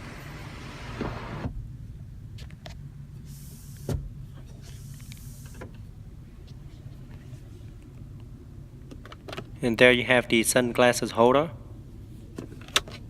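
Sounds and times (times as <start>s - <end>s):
sunroof motor humming: 0.0s - 1.8s.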